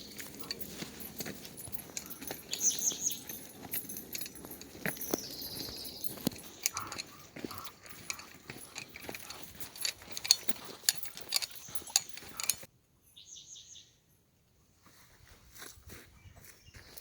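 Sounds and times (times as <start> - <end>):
dog collar tags jingling: 0.0 - 12.7
footsteps: 0.0 - 12.7.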